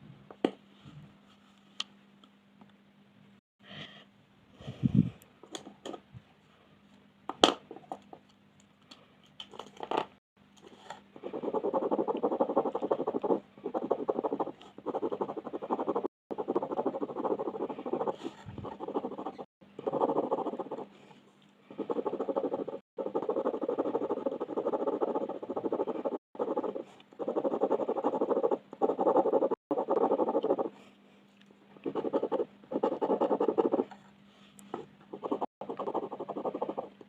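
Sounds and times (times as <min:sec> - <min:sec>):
colored pencil scratching on paper: 0:11.2 - 0:21.0, 0:21.7 - 0:30.8, 0:31.9 - 0:34.0, 0:35.1 - 0:36.9.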